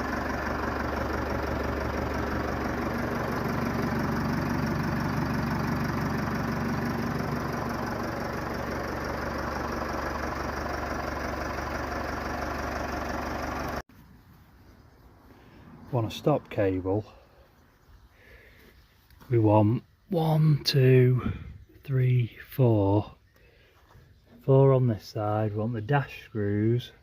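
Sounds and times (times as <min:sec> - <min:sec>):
tractor diesel engine idling: 0:00.0 - 0:13.8.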